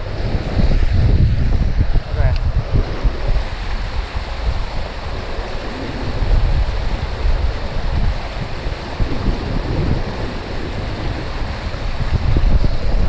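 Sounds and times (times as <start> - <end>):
waterfall rushing: 0.0 - 13.0
wind buffeting microphone: 0.0 - 13.0.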